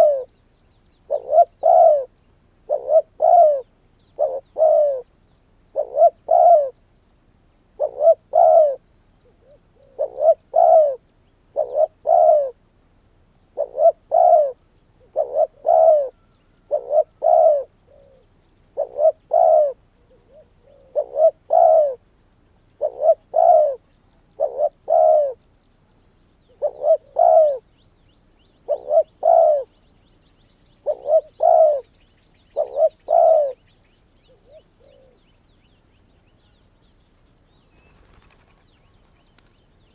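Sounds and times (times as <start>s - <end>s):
dove cooing: 0.0s - 0.4s, 1.0s - 6.8s, 7.7s - 12.7s, 13.5s - 22.1s, 22.7s - 25.5s, 26.4s - 27.8s, 28.4s - 36.8s.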